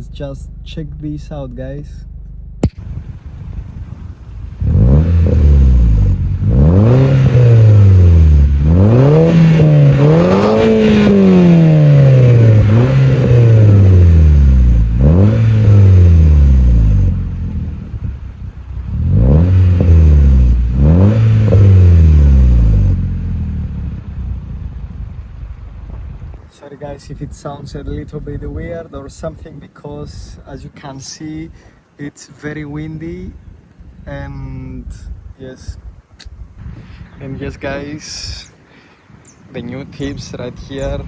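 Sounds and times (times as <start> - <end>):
car engine revving: 0.0 - 26.4.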